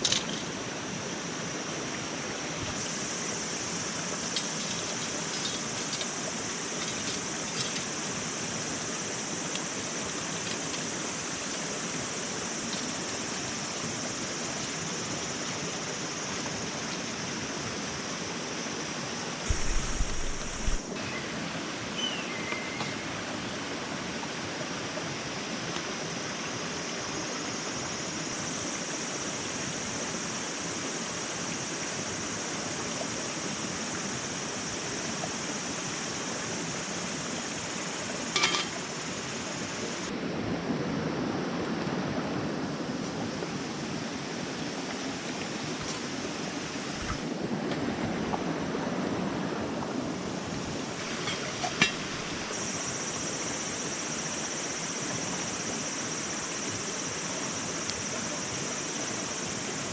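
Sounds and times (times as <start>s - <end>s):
steady rushing noise: 19.5s - 20.9s.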